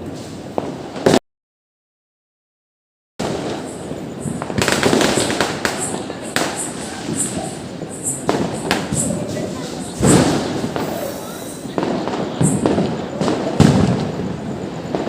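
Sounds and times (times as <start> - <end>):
firecrackers crackling: 0.0 - 1.2, 3.2 - 15.0
firecracker bangs: 3.2 - 15.0.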